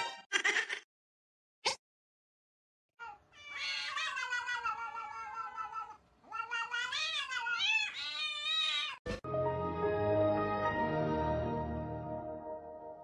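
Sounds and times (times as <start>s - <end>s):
cat yowling: 3.0s - 9.0s
music: 9.1s - 13.0s.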